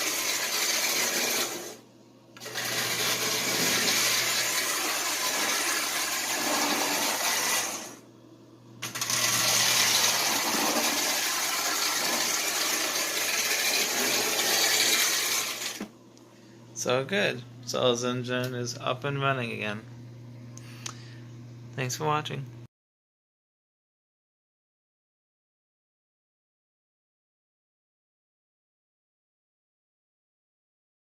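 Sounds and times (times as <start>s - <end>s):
toy train motor whirring: 0.0s - 1.8s, 2.4s - 8.0s, 8.8s - 15.8s.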